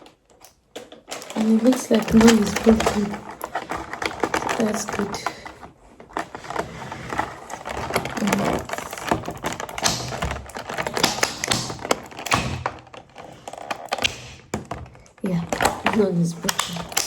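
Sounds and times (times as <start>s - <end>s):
groceries packaging handled: 0.0s - 17.0s.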